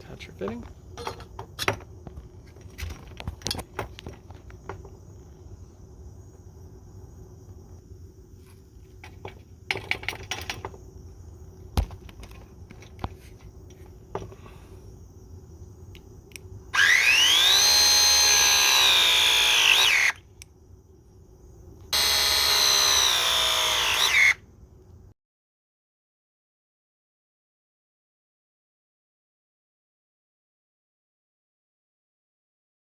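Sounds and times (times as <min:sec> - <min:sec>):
cordless drill motor whining: 0:16.8 - 0:20.2, 0:21.9 - 0:24.4.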